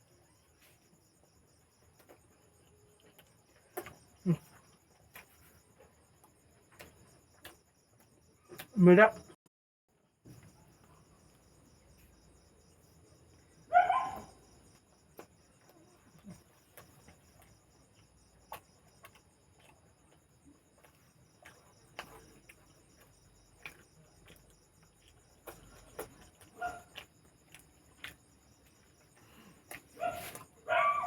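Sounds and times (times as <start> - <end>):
crickets chirping: 0.0 - 9.4, 10.0 - 31.0
soft eating clicks: 15.1 - 30.0.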